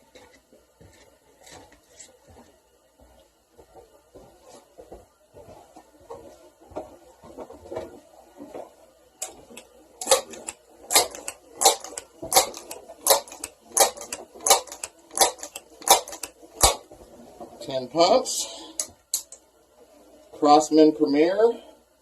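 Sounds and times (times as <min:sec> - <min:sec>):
air pistol pump strokes: 0:09.5 - 0:16.8.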